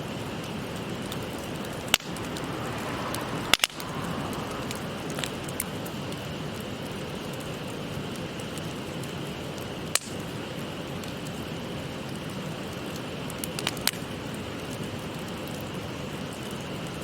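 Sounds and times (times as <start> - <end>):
stream rushing: 0.0 - 8.3
wood fire crackling: 0.0 - 17.0
sharp fire pops: 9.6 - 10.4.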